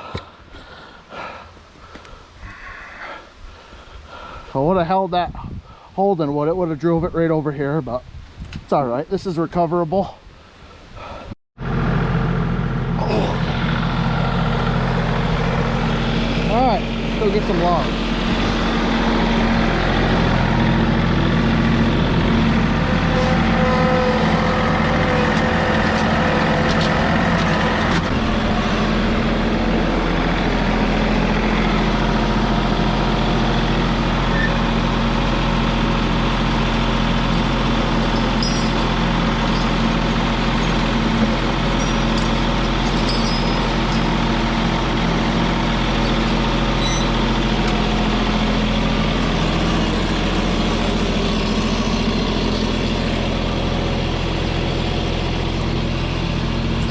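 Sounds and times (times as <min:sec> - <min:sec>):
tractor engine running: 0:11.6 - 0:56.9.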